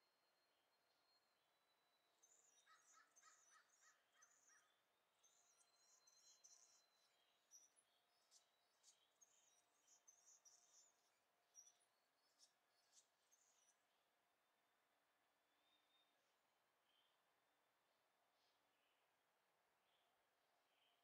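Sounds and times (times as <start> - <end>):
birds chirping: 1.9 - 13.9.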